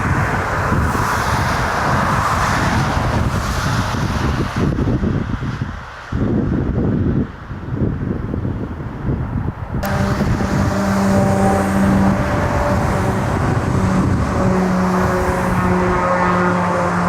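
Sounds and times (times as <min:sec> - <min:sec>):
jet engines roaring and whining: 0:00.0 - 0:05.1, 0:09.8 - 0:17.0
wind buffeting microphone: 0:00.0 - 0:17.0.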